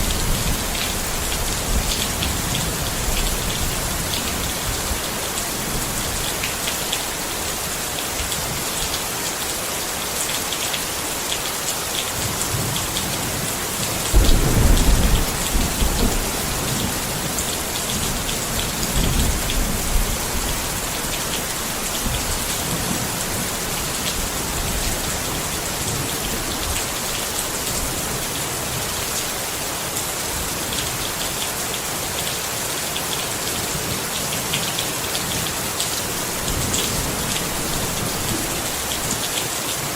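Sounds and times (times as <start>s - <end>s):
rain pattering on tent: 0.0s - 39.9s
low rumble of thunder: 14.1s - 21.0s.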